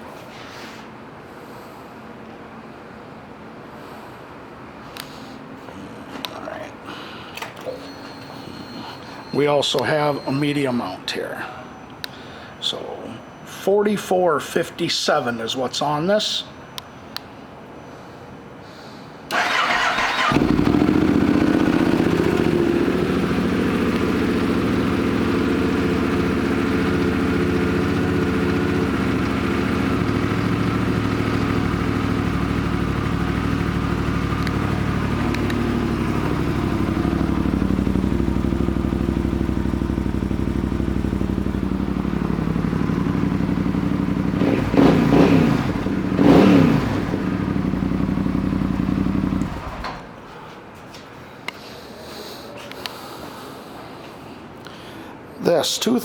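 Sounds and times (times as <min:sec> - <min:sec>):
engine revving: 0:19.3 - 0:50.0
motorcycle engine idling: 0:19.3 - 0:50.1
motorcycle engine starting: 0:19.3 - 0:50.3.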